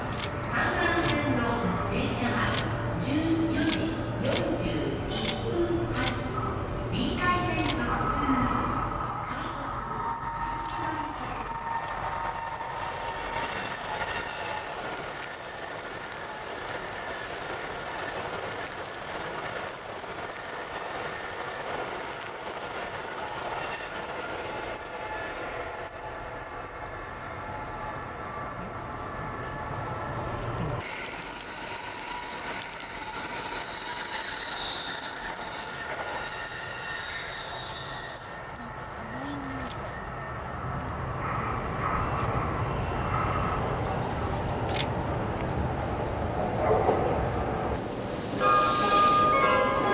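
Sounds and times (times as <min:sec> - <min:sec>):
train running noise: 0:00.0 - 0:49.9
train wheels squealing: 0:08.6 - 0:43.7, 0:48.0 - 0:49.9.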